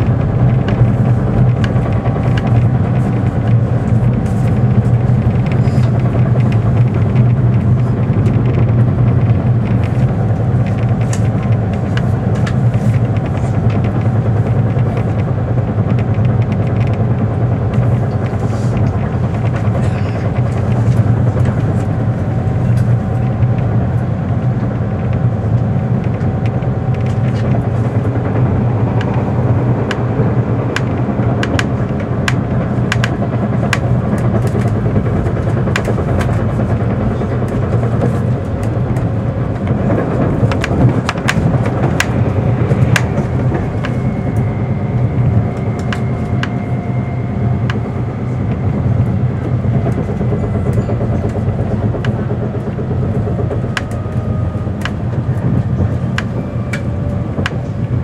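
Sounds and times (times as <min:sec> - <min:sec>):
train wheels rumbling: 0:00.0 - 0:58.0
wheels clicking over rail joints: 0:22.6 - 0:44.5.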